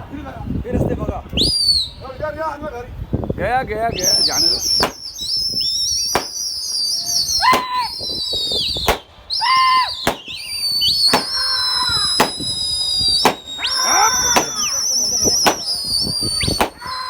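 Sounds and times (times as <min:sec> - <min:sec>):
lower whistle notes: 0:03.9 - 0:17.0
high-pitched warbling whistles: 0:04.0 - 0:17.0.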